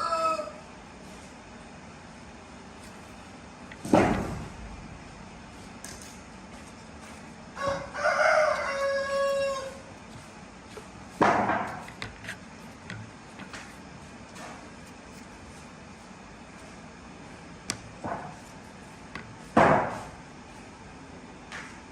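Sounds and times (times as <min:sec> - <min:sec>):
rooster crowing: 0:00.0 - 0:00.7, 0:07.5 - 0:09.9
sharp knocks: 0:03.8 - 0:04.6, 0:11.2 - 0:11.8.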